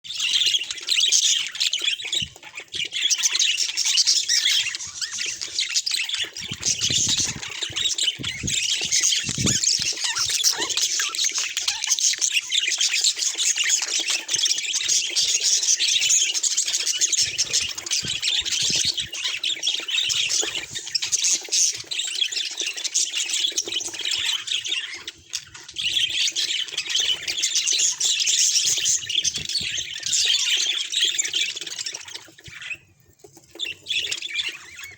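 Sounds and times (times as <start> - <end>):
budgerigars chattering and warbling: 0.1 - 32.9.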